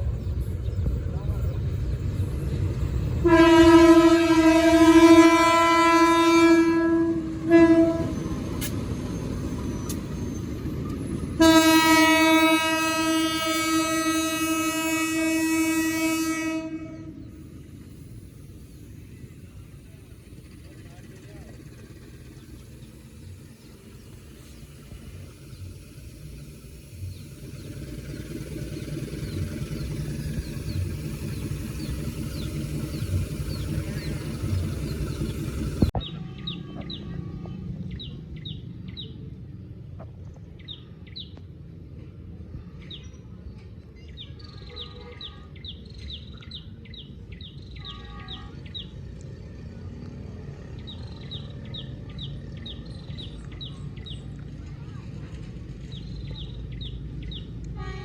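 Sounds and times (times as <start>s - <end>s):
passenger train rumbling past: 0.0s - 58.0s
birds chirping: 16.6s - 39.2s.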